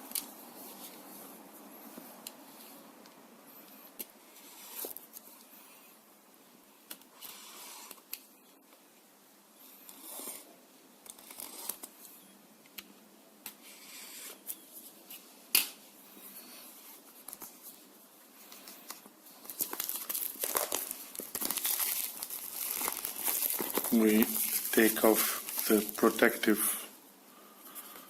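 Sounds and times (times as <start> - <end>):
plastic wrapping crinkling: 18.6 - 26.6
cardboard packaging handled: 19.3 - 26.3.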